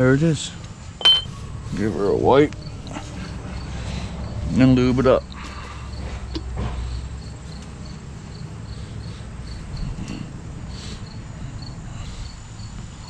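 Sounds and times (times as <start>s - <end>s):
cricket chirping: 0.0s - 13.0s
low background rumble: 0.0s - 13.0s.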